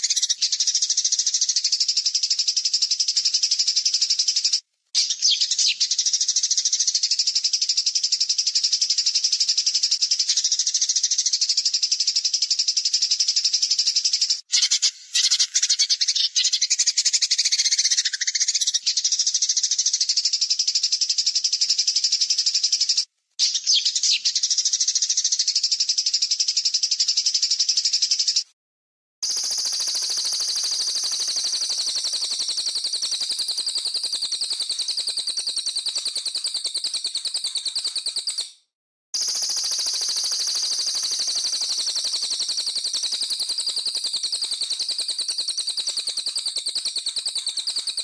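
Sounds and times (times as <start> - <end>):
songbird rattling call: 29.2 - 38.6, 39.2 - 48.0.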